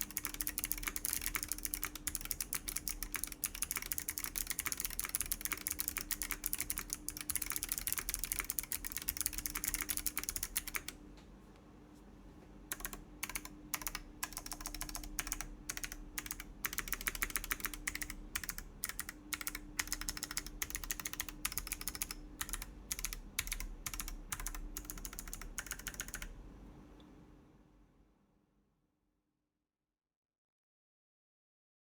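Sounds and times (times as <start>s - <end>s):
fast typing on clicky keyboard: 0.0s - 11.0s, 12.7s - 26.4s.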